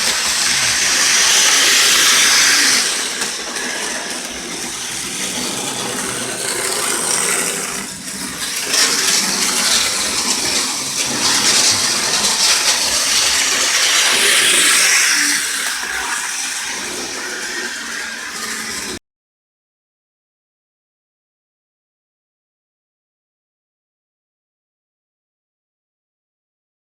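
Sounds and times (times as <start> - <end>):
model train running on track: 0.0 - 19.0.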